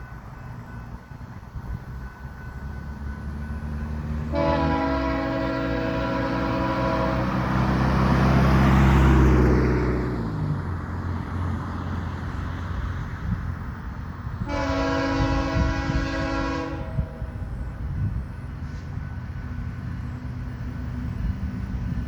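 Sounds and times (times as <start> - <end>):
locomotive engine rumble: 0.0 - 22.0
train cars rolling on rails: 0.0 - 22.0
locomotive horn: 4.2 - 8.2, 14.4 - 17.6.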